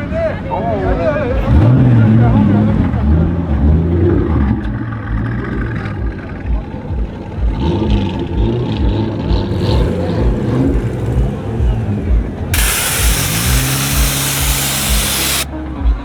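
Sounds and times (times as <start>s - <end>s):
loud hiss of air: 12.6s - 15.5s.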